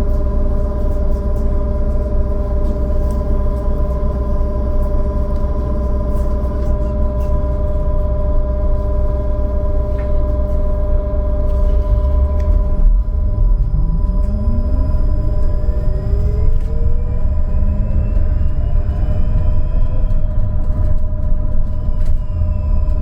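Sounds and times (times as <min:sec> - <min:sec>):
electrical whine: 0:00.0 - 0:23.0
low rumble: 0:00.0 - 0:23.0.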